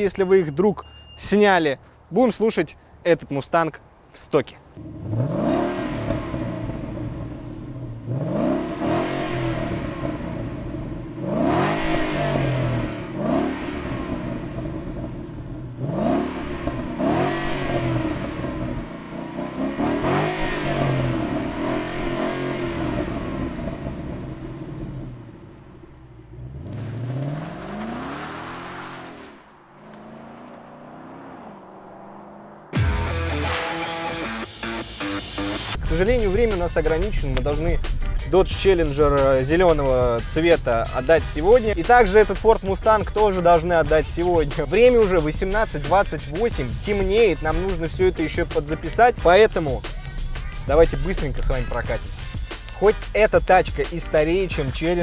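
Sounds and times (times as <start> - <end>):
car engine revving: 4.8 - 32.9, 34.6 - 53.3
car pulling away: 4.8 - 32.9.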